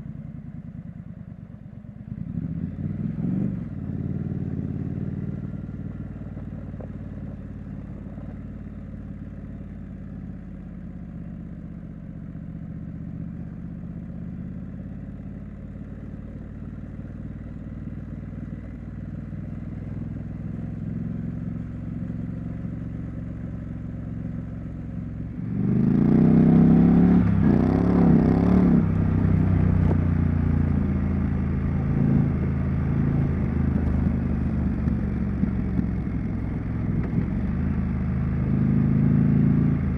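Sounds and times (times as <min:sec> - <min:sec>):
motorcycle engine revving: 0:02.1 - 0:05.8, 0:24.1 - 0:39.9.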